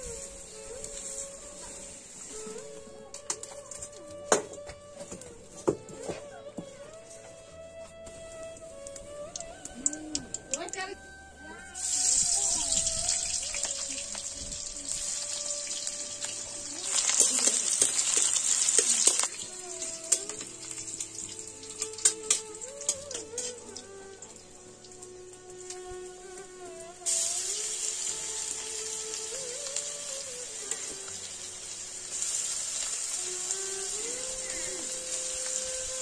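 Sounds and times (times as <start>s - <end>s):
soft background music: 0.0s - 36.0s
egg frying in hot oil: 11.8s - 23.6s, 27.0s - 34.3s.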